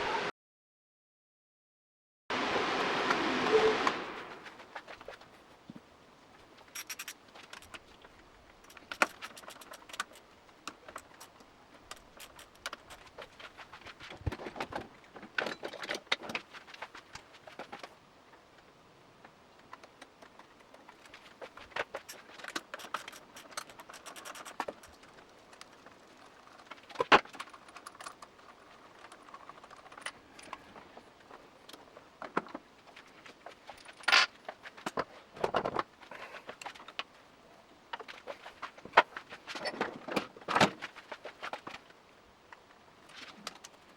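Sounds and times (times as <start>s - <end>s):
metal tools clinking and rattling: 33.6s - 35.8s.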